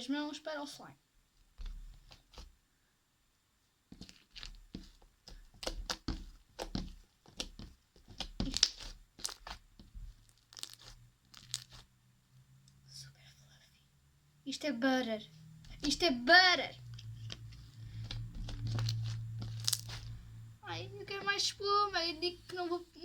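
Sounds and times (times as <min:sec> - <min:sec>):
slime squeezed by hand: 0:05.3 - 0:11.9, 0:17.0 - 0:20.2.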